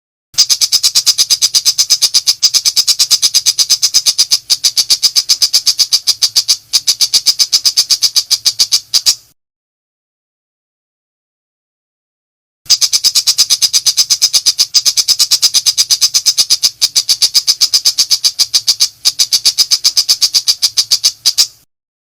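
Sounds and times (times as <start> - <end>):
bird rattling call: 0.4 - 9.3, 12.7 - 21.7.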